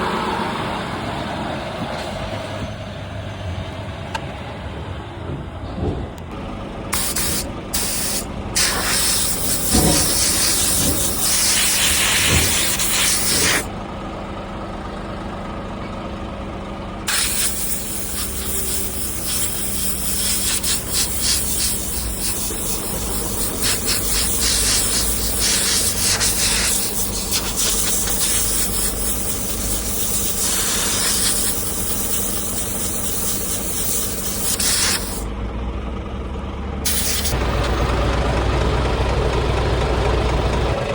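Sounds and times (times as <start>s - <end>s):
truck engine idling: 0.0s - 40.9s
compressed air hissing: 6.9s - 13.7s, 17.1s - 35.3s, 36.9s - 37.8s.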